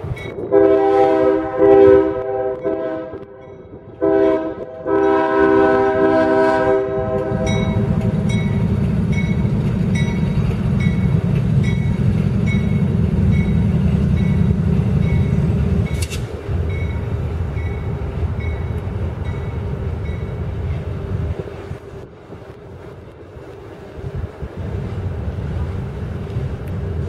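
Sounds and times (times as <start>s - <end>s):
diesel locomotives rumbling: 0.0s - 27.0s
freight cars rolling: 6.5s - 27.0s
crossing bell dinging: 7.4s - 20.5s.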